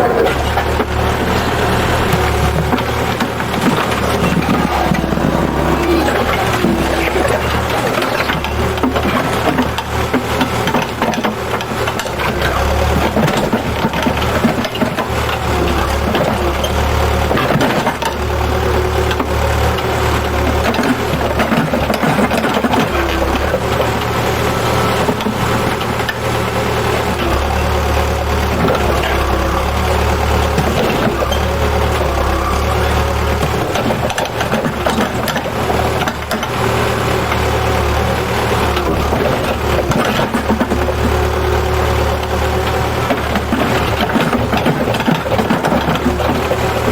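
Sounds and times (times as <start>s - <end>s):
machine engine humming: 0.0s - 46.9s
knocks and clatter: 0.2s - 18.3s, 19.1s - 24.0s, 33.1s - 36.7s, 38.6s - 41.3s, 42.1s - 46.9s.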